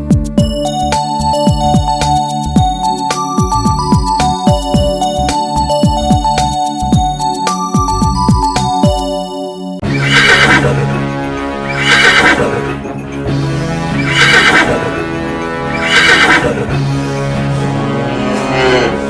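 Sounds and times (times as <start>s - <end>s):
children's song backing track: 0.1s - 9.9s
horse neigh: 9.8s - 11.0s, 11.7s - 12.9s, 13.9s - 15.0s, 15.7s - 16.8s.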